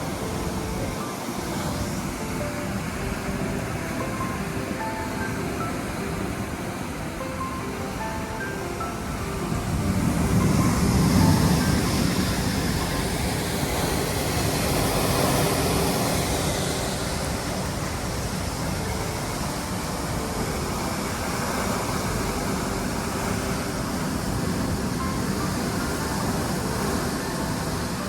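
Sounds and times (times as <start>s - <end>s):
heavy rain pouring: 0.0s - 28.0s.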